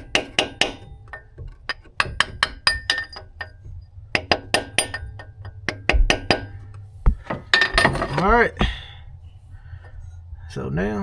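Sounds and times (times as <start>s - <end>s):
hammer tapping on metal: 0.0s - 3.6s, 4.2s - 7.9s.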